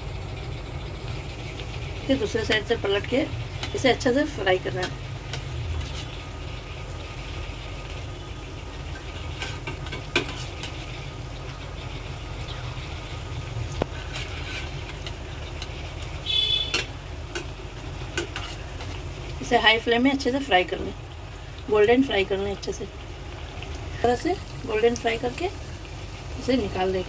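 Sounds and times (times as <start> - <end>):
low hum: 0.0 - 9.4
bread sizzling in a pan: 0.0 - 27.0.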